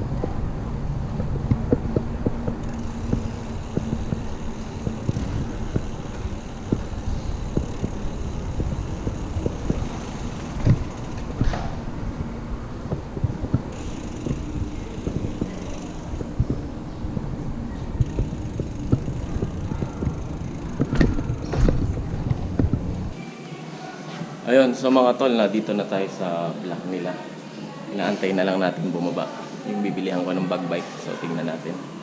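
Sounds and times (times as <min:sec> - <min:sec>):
bike tyres rumbling: 0:00.0 - 0:23.2
wind: 0:00.0 - 0:32.0
bike rattling clicks and knocks: 0:01.2 - 0:11.9, 0:12.9 - 0:16.6, 0:17.2 - 0:23.2.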